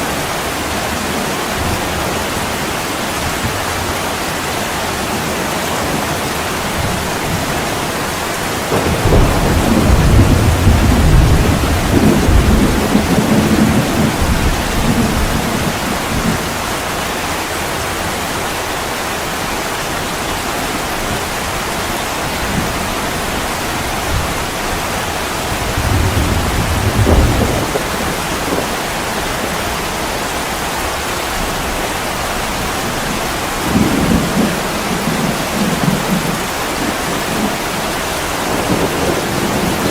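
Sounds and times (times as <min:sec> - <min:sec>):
heavy rain pouring: 0:00.0 - 0:39.9
thunder rumbling: 0:05.2 - 0:16.8, 0:22.3 - 0:30.2, 0:32.4 - 0:39.9.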